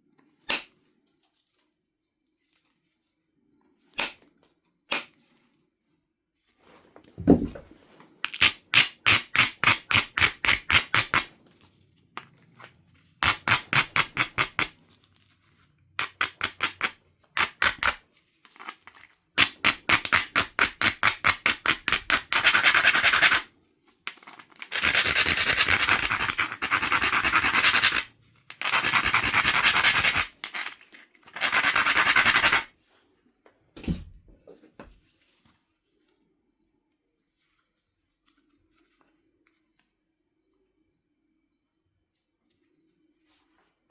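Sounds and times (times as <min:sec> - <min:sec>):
stone scraping flint: 0:24.6 - 0:30.3, 0:31.2 - 0:32.7.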